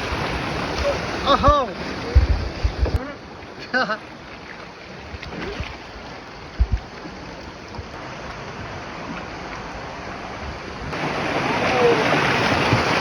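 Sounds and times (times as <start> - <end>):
river water rushing and splashing: 0.0 - 13.0
short low thumps: 1.4 - 3.0, 6.6 - 7.0.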